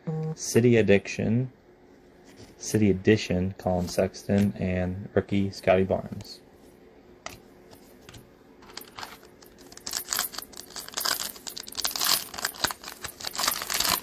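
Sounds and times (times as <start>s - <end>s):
foil wrapper tearing and crinkling: 9.7s - 14.0s.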